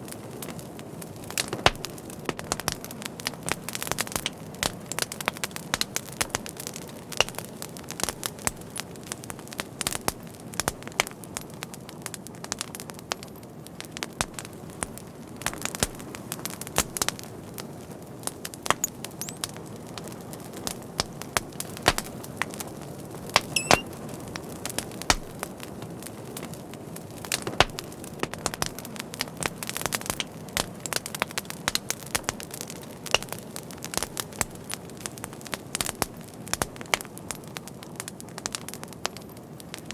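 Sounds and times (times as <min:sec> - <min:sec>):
fire crackling: 0:00.0 - 0:39.9
brief high whistle: 0:23.5 - 0:23.8.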